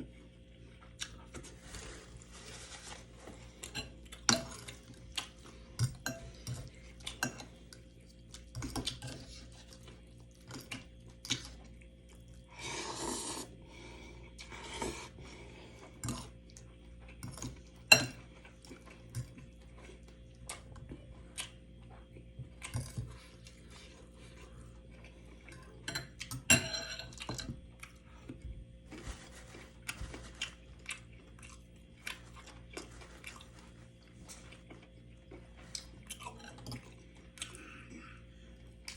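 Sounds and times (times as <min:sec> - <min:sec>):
cutlery clinking on a dish: 0:25.8 - 0:27.5.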